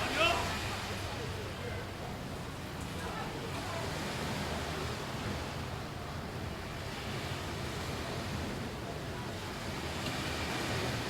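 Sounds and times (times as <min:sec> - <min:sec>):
ocean waves washing onto beach: 0:00.0 - 0:11.0.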